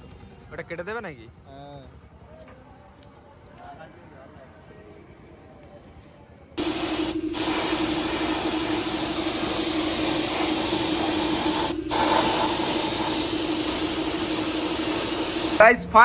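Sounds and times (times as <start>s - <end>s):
loud hiss of rushing air: 6.6s - 15.6s
steady hum: 6.6s - 16.0s.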